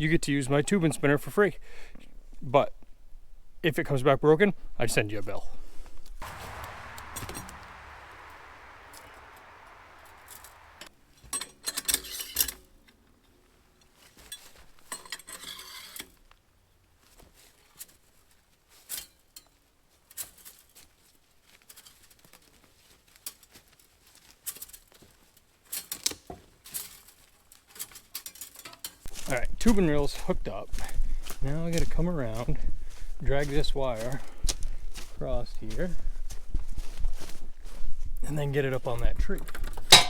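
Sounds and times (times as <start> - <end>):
soft hiss: 6.2 - 10.9
metal wire clinking and rattling: 39.7 - 40.0.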